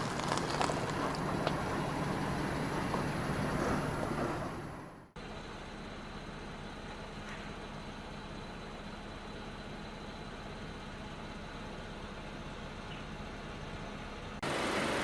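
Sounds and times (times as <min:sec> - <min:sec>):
car engine and tyre noise: 0:00.0 - 0:15.0
quiet engine hum: 0:00.0 - 0:15.0.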